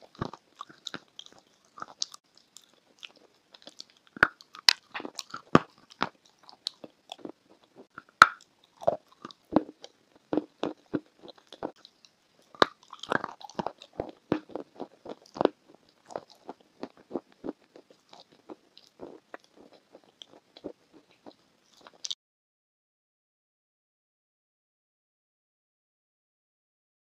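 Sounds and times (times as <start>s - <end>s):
crunchy food biting and chewing: 0.0s - 22.2s.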